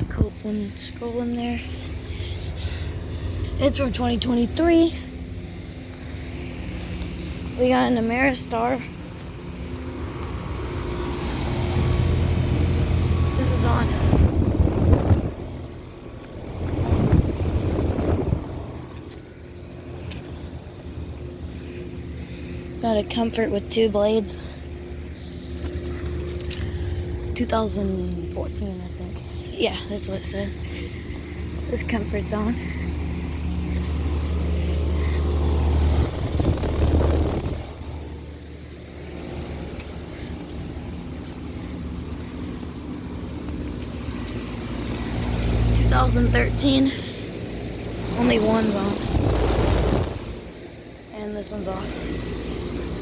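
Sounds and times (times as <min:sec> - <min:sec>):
air conditioner rushing: 0:00.0 - 0:27.9, 0:28.6 - 0:43.3, 0:44.0 - 0:53.0
air conditioner hum: 0:00.0 - 0:53.0.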